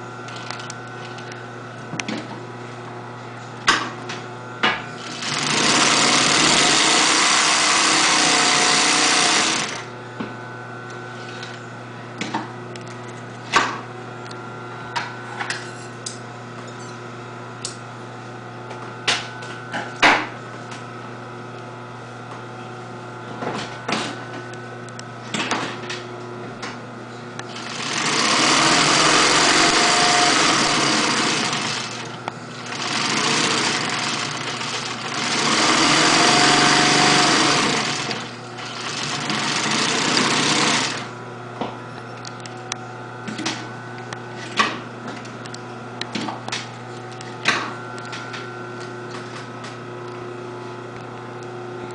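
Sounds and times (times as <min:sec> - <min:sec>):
sewing machine stitching: 0:05.0 - 0:09.9, 0:27.5 - 0:41.1
sewing machine motor hum: 0:05.0 - 0:10.0, 0:27.5 - 0:41.2.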